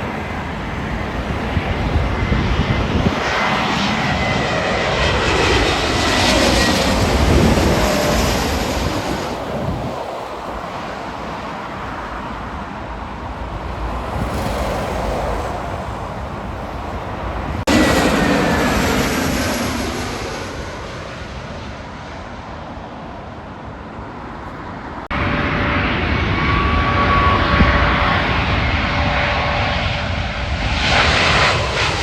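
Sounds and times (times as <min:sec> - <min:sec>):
faint engine whine: 0:00.0 - 0:32.0
jet engine rush: 0:00.0 - 0:32.0.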